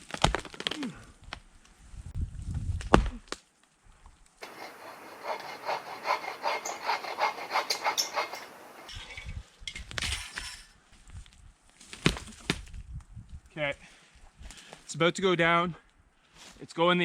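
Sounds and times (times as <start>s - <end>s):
rustle: 0.0s - 15.0s, 15.8s - 17.0s
hand saw cutting wood: 4.4s - 8.9s.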